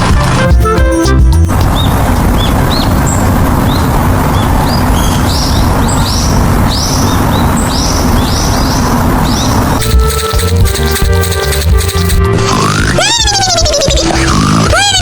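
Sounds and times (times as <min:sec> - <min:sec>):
loud low rumble: 0:01.5 - 0:10.8
birds chirping: 0:01.5 - 0:15.0.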